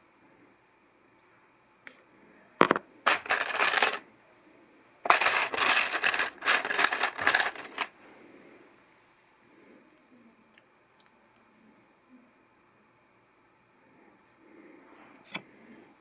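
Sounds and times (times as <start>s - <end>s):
plastic toy bricks clattering: 2.6s - 4.0s, 5.0s - 7.9s.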